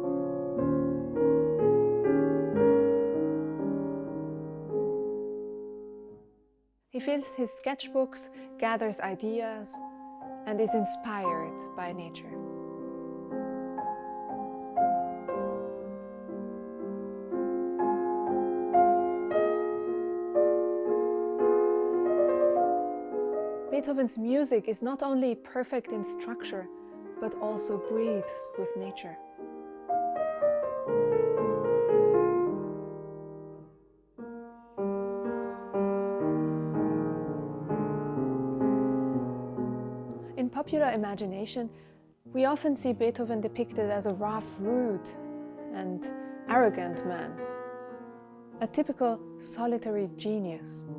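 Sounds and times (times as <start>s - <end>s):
slow solo piano melody: 0.0s - 6.5s, 9.8s - 23.9s, 26.6s - 40.4s, 43.6s - 49.5s.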